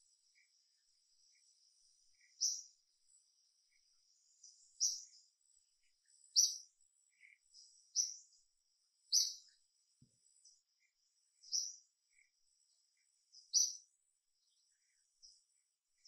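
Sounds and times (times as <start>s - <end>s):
faint bird chirps: 0.0s - 16.0s
high bird calls: 9.1s - 9.5s.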